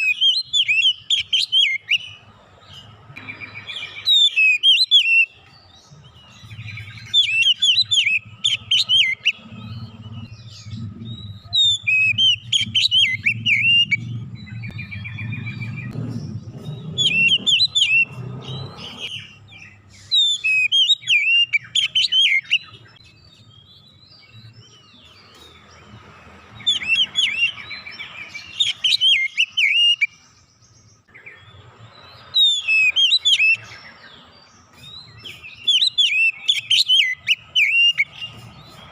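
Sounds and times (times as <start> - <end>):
bird chirping and whistling: 0.0 - 30.4, 31.1 - 38.9
low hum: 9.3 - 19.1.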